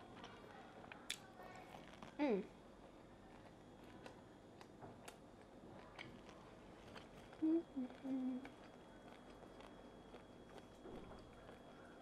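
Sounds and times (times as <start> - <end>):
person chewing: 3.3 - 11.8
person humming mm: 7.4 - 8.5.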